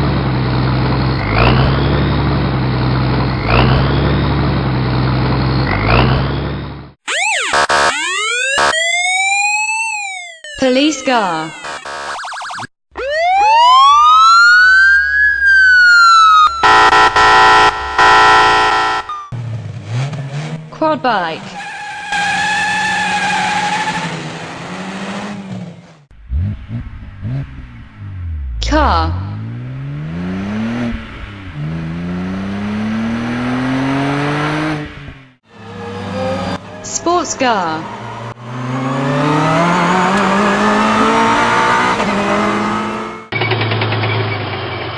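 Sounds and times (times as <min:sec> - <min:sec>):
another engine: 0:00.0 - 0:06.9, 0:16.6 - 0:44.9
car engine accelerating: 0:00.0 - 0:07.0, 0:16.6 - 0:44.9
harsh blaring siren tone: 0:07.0 - 0:10.6, 0:11.4 - 0:19.4, 0:35.4 - 0:43.4
police siren wailing: 0:07.1 - 0:10.6, 0:11.4 - 0:19.3, 0:35.5 - 0:43.3.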